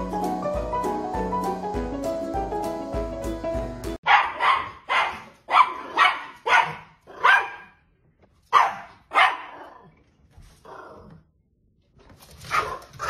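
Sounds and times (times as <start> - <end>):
small dog barking: 4.0 - 7.8, 8.5 - 9.7.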